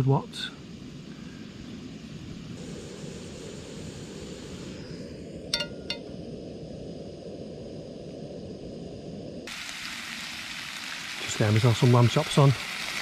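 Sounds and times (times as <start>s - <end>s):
metal cookware clinking on stove: 5.5s - 6.1s.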